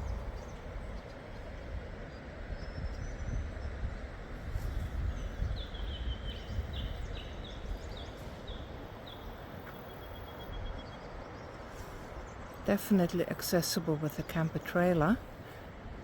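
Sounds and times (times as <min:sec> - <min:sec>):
steady low rumble: 0:00.0 - 0:13.3
bird chirping: 0:05.1 - 0:11.6.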